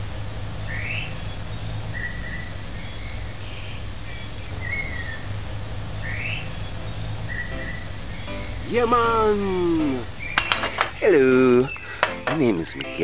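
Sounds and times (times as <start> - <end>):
bird calls: 7.4 - 13.0.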